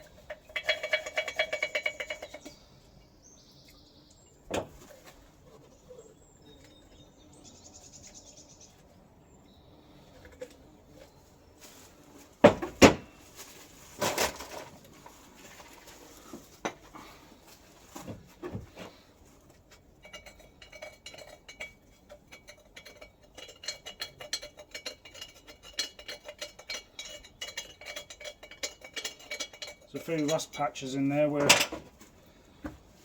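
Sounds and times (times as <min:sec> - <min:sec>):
light ringing metal clinks: 0:00.2 - 0:02.5, 0:20.0 - 0:31.8.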